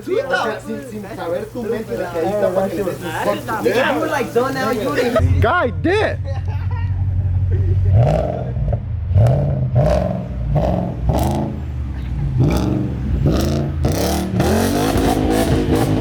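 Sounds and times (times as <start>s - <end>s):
car engine revving in blips: 7.0s - 16.0s.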